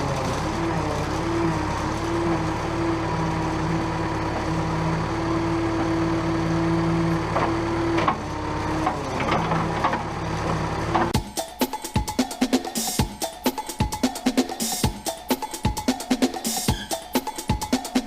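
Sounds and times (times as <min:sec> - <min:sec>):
backhoe diesel engine: 0:00.0 - 0:11.2.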